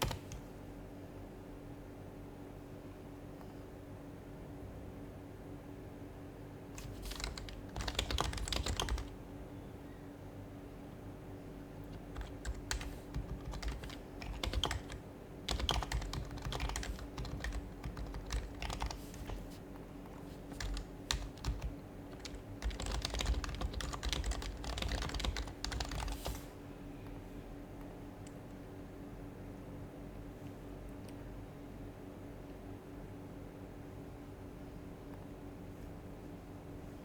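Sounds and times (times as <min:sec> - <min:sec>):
soft muted keyboard typing: 0:00.0 - 0:00.5, 0:06.7 - 0:09.2, 0:11.8 - 0:28.6.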